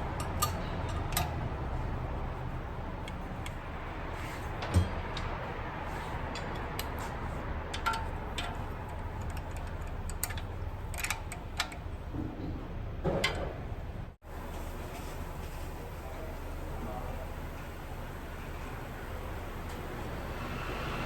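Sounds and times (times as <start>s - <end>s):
hand tools clicking and tapping: 0.0s - 1.8s, 3.0s - 3.7s, 4.5s - 12.6s.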